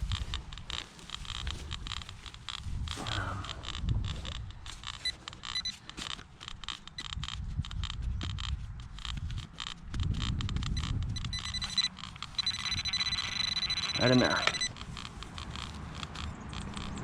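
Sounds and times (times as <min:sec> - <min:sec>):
metal detector beeps: 0:04.4 - 0:17.0.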